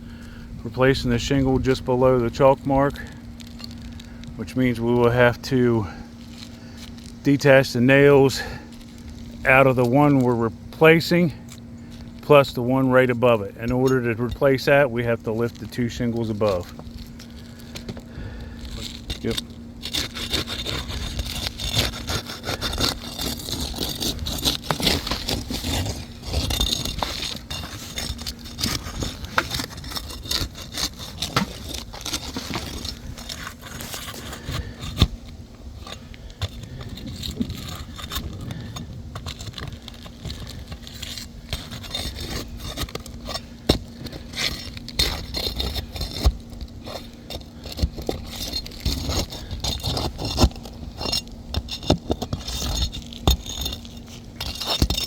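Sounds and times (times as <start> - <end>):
steady low hum: 0.0 - 55.0
roof shingles scraping: 0.2 - 55.0.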